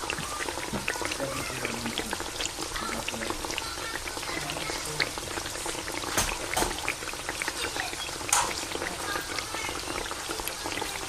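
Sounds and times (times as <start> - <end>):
meat and onion sizzling in a pan: 0.0 - 11.0.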